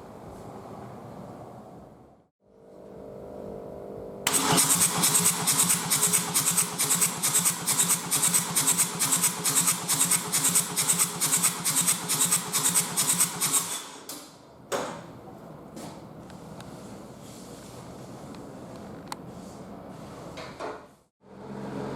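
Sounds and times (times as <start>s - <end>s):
diesel engine starter cranking: 4.3s - 9.1s.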